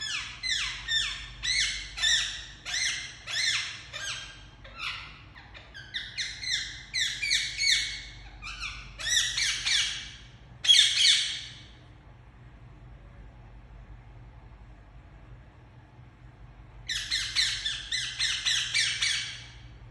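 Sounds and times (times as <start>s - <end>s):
parakeet squawking: 0.0s - 11.7s, 16.9s - 19.6s.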